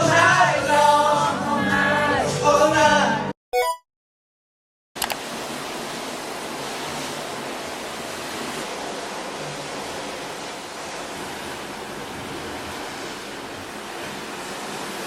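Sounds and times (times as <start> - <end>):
rush of wind and sea: 5.0 - 15.0.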